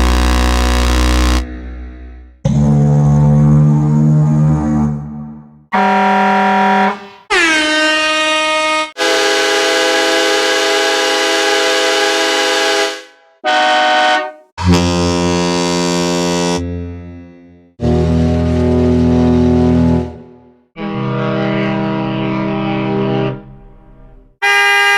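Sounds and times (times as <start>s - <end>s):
party air horn: 0.0s - 1.4s, 5.7s - 16.6s, 24.4s - 24.9s
locomotive horn: 0.0s - 1.5s, 5.7s - 16.6s, 24.4s - 24.9s
deep horn blast: 0.0s - 7.3s, 8.2s - 24.9s
pickup truck horn: 5.7s - 7.3s, 7.9s - 16.5s, 24.4s - 24.9s
fire engine horn: 5.7s - 16.6s, 24.4s - 24.9s.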